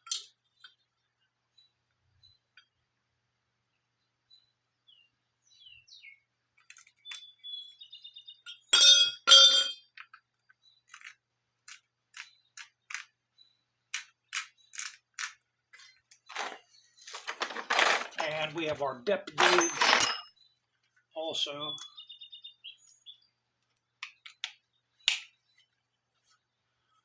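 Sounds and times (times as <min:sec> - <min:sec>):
metal clinks: 0:08.5 - 0:10.0, 0:19.3 - 0:20.5
metal clanking on concrete: 0:08.7 - 0:10.0, 0:17.2 - 0:18.6, 0:19.3 - 0:20.4.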